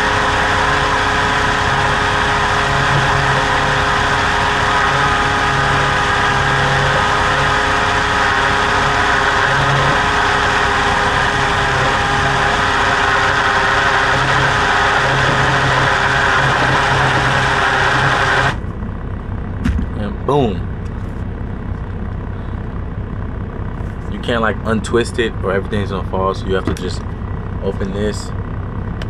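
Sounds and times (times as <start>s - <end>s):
blender motor whirring: 0.0s - 18.6s.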